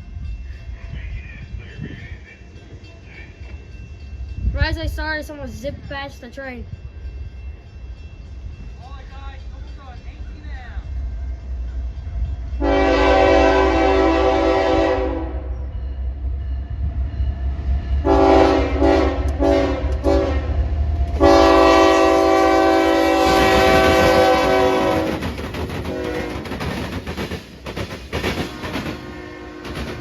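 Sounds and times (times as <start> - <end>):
train rumbling: 0.0 - 30.0
train air horn blasts: 12.6 - 15.6, 18.0 - 20.6, 21.2 - 25.2, 25.9 - 26.5, 28.5 - 30.0.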